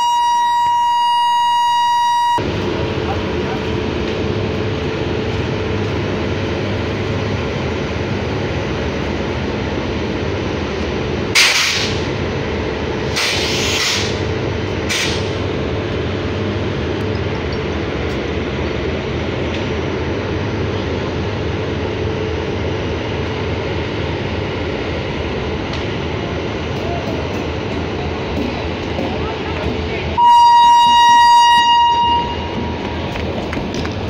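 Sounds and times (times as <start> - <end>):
train car rumble and hum: 0.0 - 34.0
compressed air hisses: 13.1 - 14.2.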